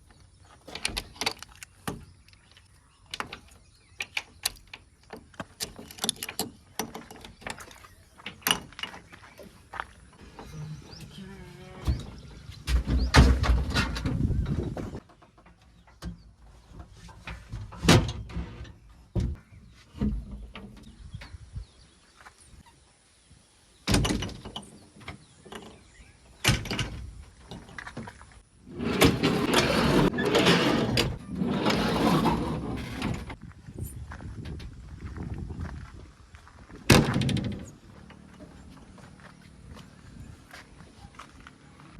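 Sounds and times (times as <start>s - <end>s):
backhoe clunks and knocks: 3.1s - 21.6s, 23.8s - 33.5s, 36.7s - 41.2s.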